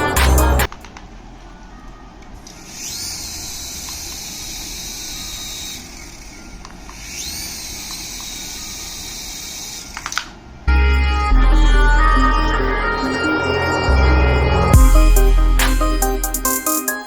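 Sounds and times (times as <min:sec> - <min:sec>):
small electric motor whining: 0:02.4 - 0:10.3.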